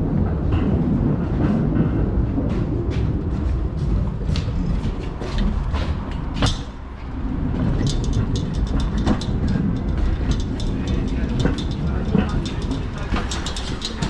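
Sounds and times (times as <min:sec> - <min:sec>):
knocks and rattles: 0:00.3 - 0:14.0
lorry engine rumbling: 0:00.4 - 0:14.0.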